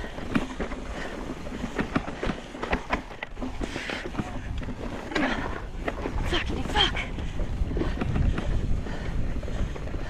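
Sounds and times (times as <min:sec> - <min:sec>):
wind on microphone: 0:03.5 - 0:10.0.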